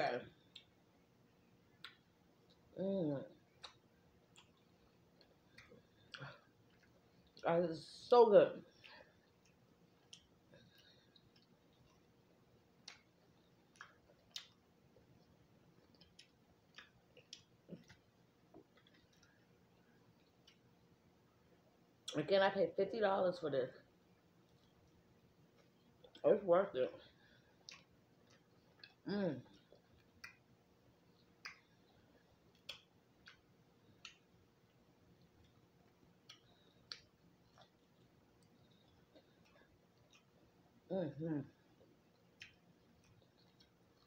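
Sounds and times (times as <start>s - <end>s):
wet mouth clicks chewing: 3.6s - 7.4s, 12.8s - 14.6s, 27.6s - 30.4s, 32.5s - 34.3s, 35.2s - 40.6s, 41.8s - 44.0s
crunchy chewing: 31.0s - 40.8s, 41.7s - 44.0s.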